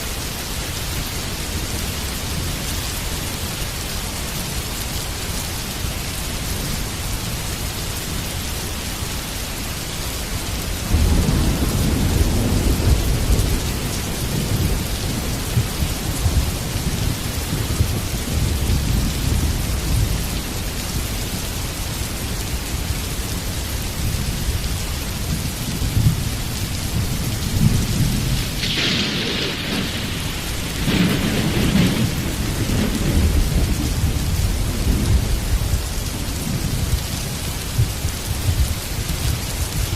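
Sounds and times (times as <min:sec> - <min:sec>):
heavy rain falling: 0:00.0 - 0:39.9
thunder rolling and cracking: 0:10.8 - 0:20.1, 0:26.9 - 0:37.0.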